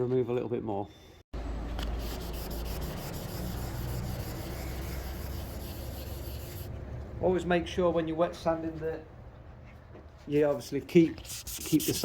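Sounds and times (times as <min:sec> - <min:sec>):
sandpaper rubbing car paint: 0:01.8 - 0:06.7, 0:10.5 - 0:12.0.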